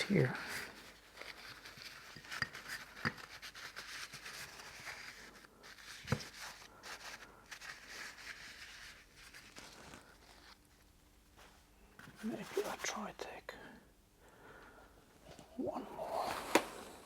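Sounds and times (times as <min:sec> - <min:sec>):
hands rubbing greasy metal parts: 0:00.8 - 0:09.3.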